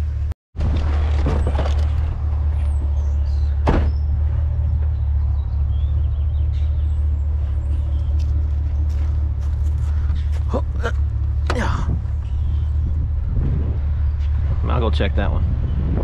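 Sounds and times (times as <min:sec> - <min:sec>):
truck engine running: 0:00.0 - 0:15.1.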